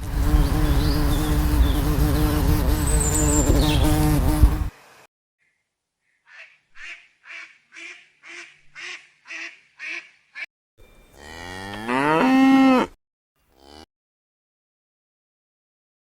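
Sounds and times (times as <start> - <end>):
bird calling: 5.4 - 10.5
cow mooing: 11.1 - 13.9.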